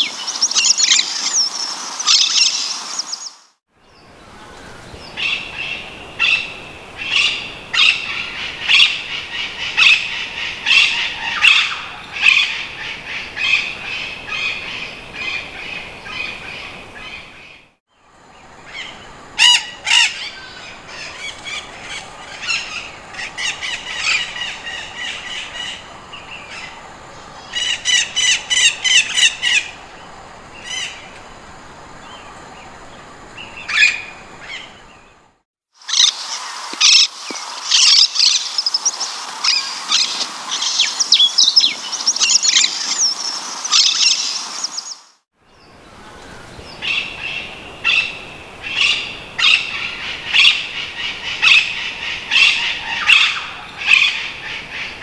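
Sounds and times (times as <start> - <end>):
parakeets calling: 0.0 - 3.4, 4.5 - 17.6, 35.8 - 45.1, 45.8 - 55.0.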